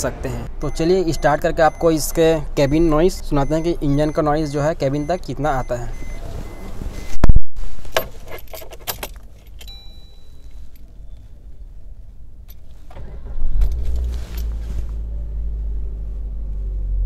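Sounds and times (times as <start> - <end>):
car engine cranking and idling: 0.0 - 7.2, 7.8 - 17.0
short electronic beep: 5.0 - 7.4
ignition key jangling: 7.9 - 11.1, 12.4 - 14.6.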